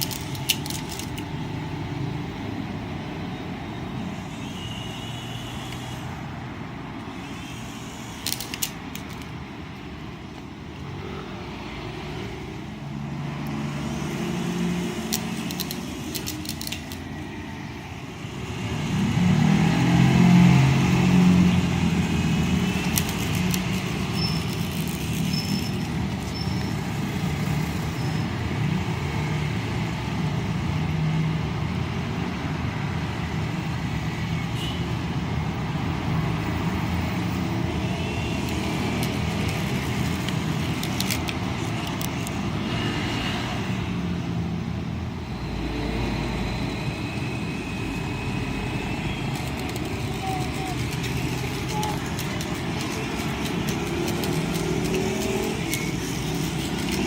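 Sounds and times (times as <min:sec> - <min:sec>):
scattered clicks: 0:00.0 - 0:01.6, 0:08.2 - 0:09.4, 0:15.0 - 0:17.2, 0:22.5 - 0:27.0, 0:38.4 - 0:42.5, 0:49.1 - 0:57.0
vehicle engine humming: 0:00.0 - 0:28.1, 0:37.0 - 0:43.1, 0:44.4 - 0:57.0.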